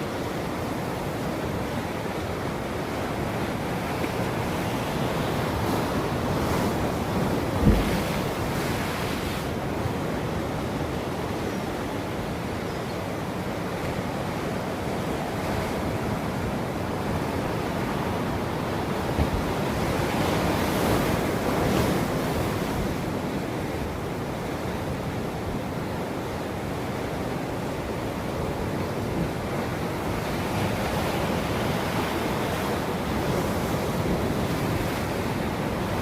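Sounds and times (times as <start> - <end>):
ocean waves breaking: 0.0 - 12.3, 26.5 - 36.0.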